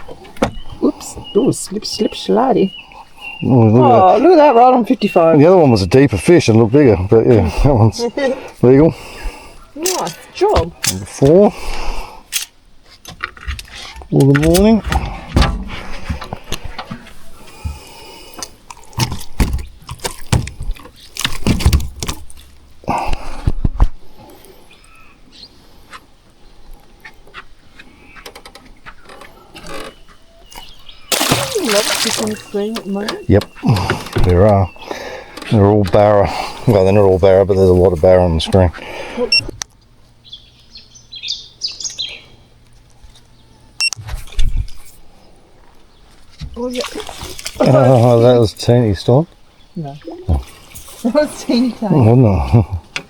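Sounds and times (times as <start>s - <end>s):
bird chirping: 0.0s - 11.2s, 27.5s - 37.2s, 40.2s - 42.5s
loud thumps: 14.5s - 16.3s
fishing gear knocking and rattling: 18.7s - 22.6s.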